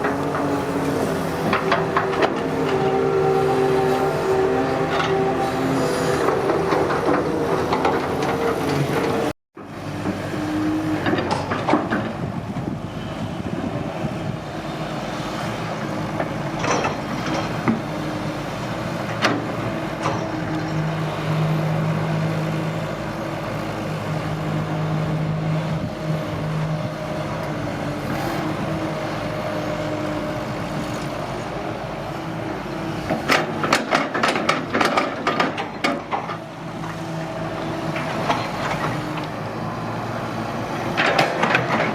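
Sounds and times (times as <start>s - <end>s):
heavy diesel machinery running: 0.0s - 41.9s.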